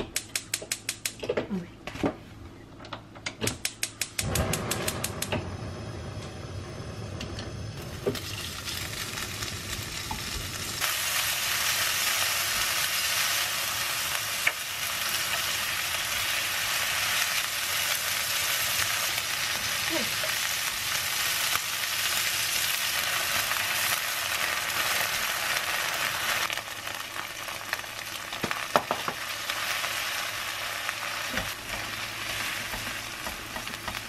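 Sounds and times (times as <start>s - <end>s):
gas stove igniter clicking: 0.0s - 1.2s, 2.9s - 5.6s
food sizzling in oil: 7.5s - 34.0s.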